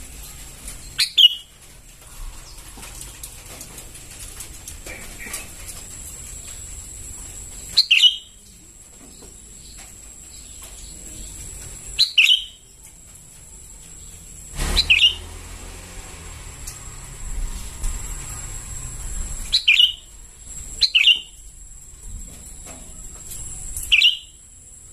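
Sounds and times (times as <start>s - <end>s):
bird chirping: 0.2s - 1.6s, 7.5s - 12.9s, 13.9s - 15.4s, 19.4s - 21.4s, 23.4s - 24.4s.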